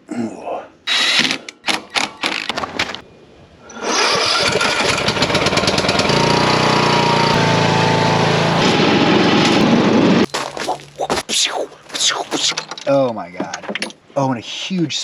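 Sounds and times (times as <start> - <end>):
small engine running: 3.9 - 10.3.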